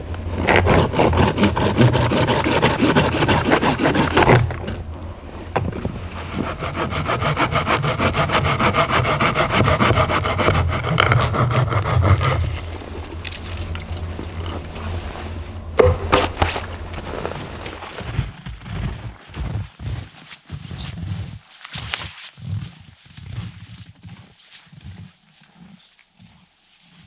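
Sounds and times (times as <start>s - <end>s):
hand saw cutting wood: 0.0s - 18.1s.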